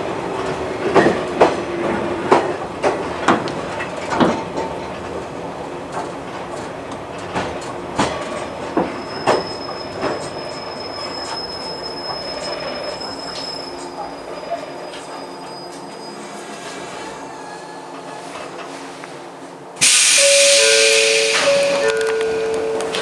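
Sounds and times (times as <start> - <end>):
high-pitched wheel squeal: 19.8 - 23.0
train rumble: 19.8 - 23.0
train wheels clacking over joints: 19.8 - 23.0.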